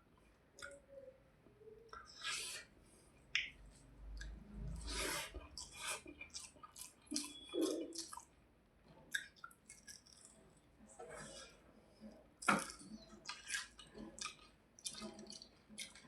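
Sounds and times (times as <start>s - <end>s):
wet chewing mouth sounds: 4.0s - 8.3s, 9.1s - 10.4s, 11.0s - 16.0s.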